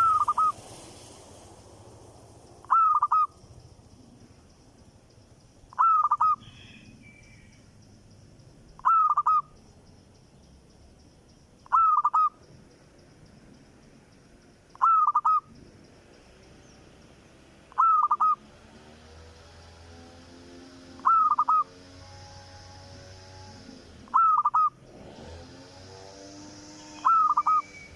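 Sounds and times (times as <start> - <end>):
bird calling: 0.0 - 0.6, 2.6 - 3.4, 5.7 - 7.8, 8.7 - 9.7, 11.6 - 12.6, 14.7 - 15.6, 17.7 - 18.4, 21.0 - 21.8, 24.0 - 24.8, 26.8 - 27.9.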